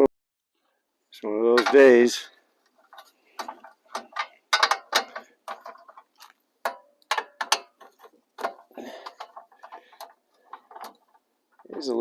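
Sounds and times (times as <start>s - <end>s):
metallic clicks and clacks: 1.5s - 2.2s, 2.8s - 12.0s.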